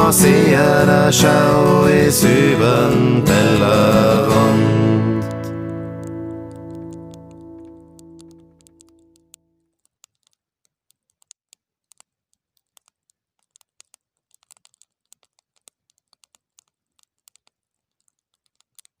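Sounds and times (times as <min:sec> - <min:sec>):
wood fire crackling: 0:00.0 - 0:09.4.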